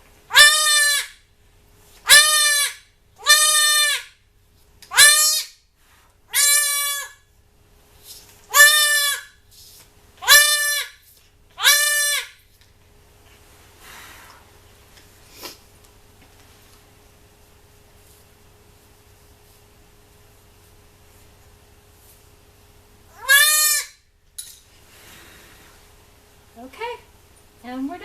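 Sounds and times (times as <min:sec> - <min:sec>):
goat kid bleating: 0:00.3 - 0:01.2, 0:02.1 - 0:04.1, 0:04.9 - 0:05.5, 0:06.3 - 0:07.2, 0:08.5 - 0:09.3, 0:10.2 - 0:10.9, 0:11.6 - 0:12.3, 0:23.1 - 0:23.9.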